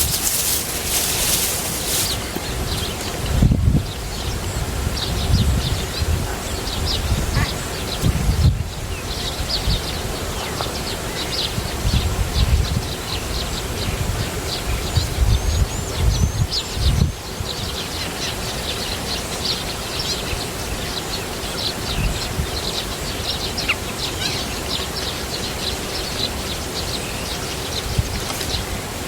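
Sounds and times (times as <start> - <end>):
wind rumble on microphone: 0.0 - 17.8, 20.3 - 23.6, 27.4 - 29.0
small birds chirping: 0.0 - 29.0.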